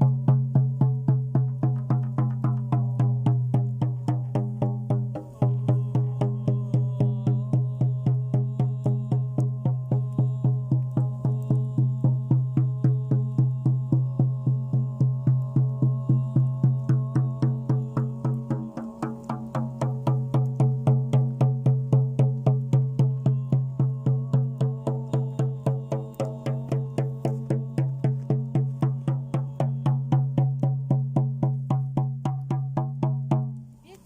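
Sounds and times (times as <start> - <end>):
even drum beat: 0.0 - 33.6
low chanted drone: 5.2 - 20.5, 23.0 - 30.3.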